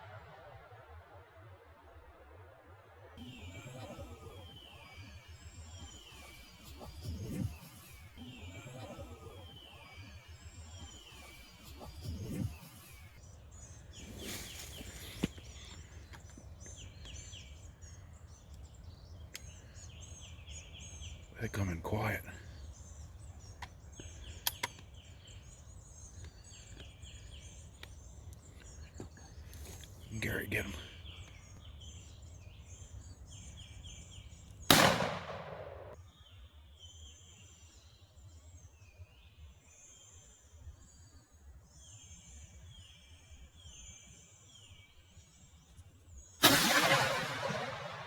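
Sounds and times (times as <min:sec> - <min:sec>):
faint bird twittering: 0:03.2 - 0:48.0
songbird chirps: 0:03.2 - 0:48.0
sharp clicks: 0:24.4 - 0:24.9
shotgun blast: 0:34.7 - 0:36.0, 0:46.4 - 0:48.0.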